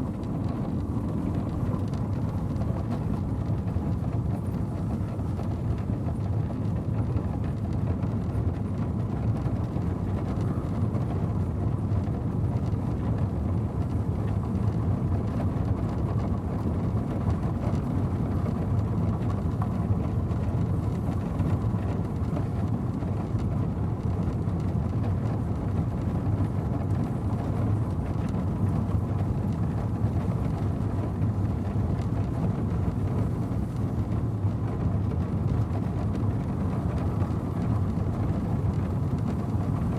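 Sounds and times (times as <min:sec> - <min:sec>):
stagecoach low rumble: 0:00.0 - 0:39.9.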